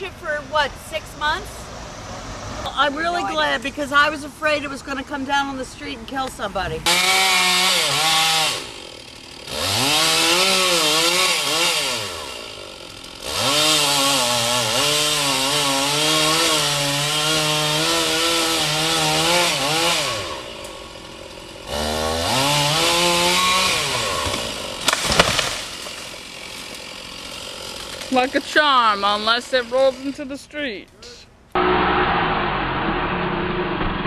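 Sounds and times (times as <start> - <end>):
chainsaw engine revving: 6.8 - 30.2, 31.6 - 34.0.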